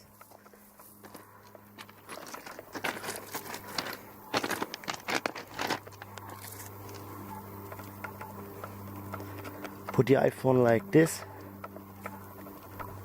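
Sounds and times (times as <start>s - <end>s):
crunching and rustling: 0.0s - 10.0s
steady low hum: 0.0s - 13.0s.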